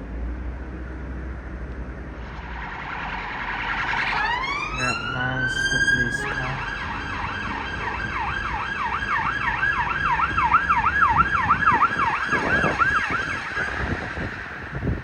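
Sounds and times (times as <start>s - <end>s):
police siren yelping: 3.7s - 13.9s.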